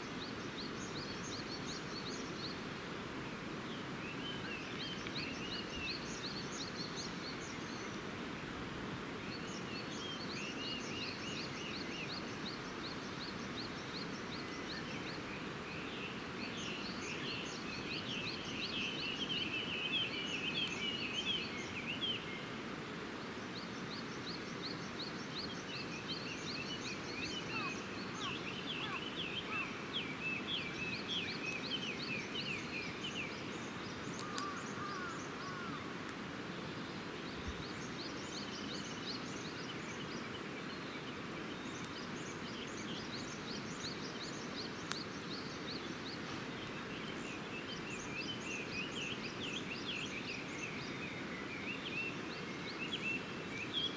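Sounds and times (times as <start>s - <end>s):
small birds singing: 0.0s - 53.9s.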